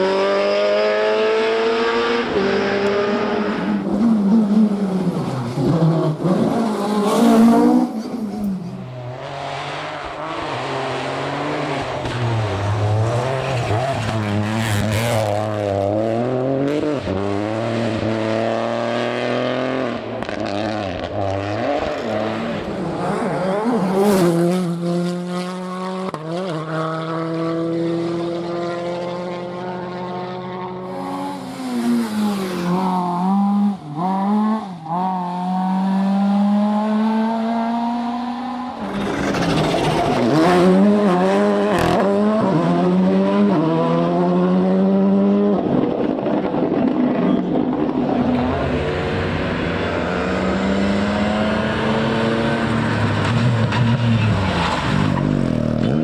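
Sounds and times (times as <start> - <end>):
rally car engines at full throttle: 0.0 - 56.0.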